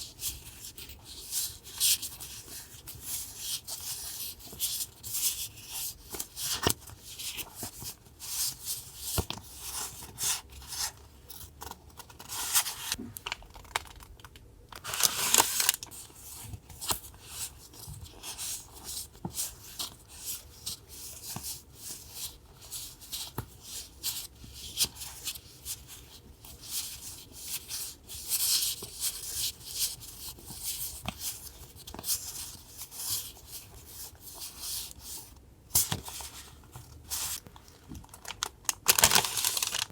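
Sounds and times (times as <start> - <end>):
paper rustling and tearing: 14.8 - 16.0, 38.2 - 39.9.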